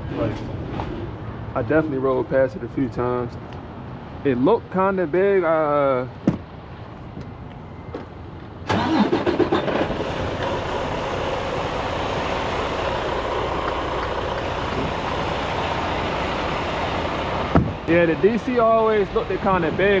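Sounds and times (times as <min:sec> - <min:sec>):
engine starting and running: 0:08.6 - 0:18.0.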